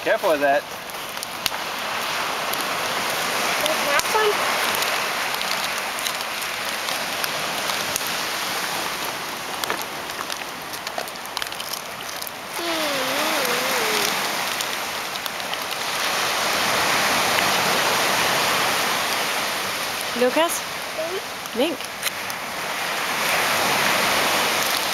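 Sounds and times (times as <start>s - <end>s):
surf washing in: 0.0s - 11.3s, 12.3s - 24.9s
bonfire crackling and popping: 0.0s - 24.9s.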